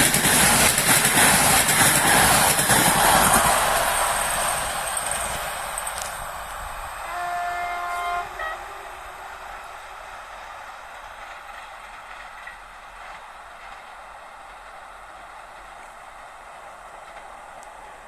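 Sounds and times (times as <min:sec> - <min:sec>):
train wheels rolling on rails: 0:00.0 - 0:18.0
train horn: 0:07.0 - 0:09.6.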